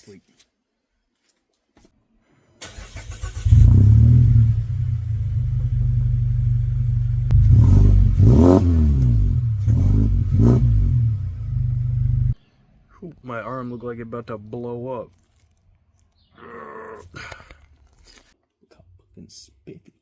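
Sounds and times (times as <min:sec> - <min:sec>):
car engine revving with open exhaust: 0:03.4 - 0:12.4.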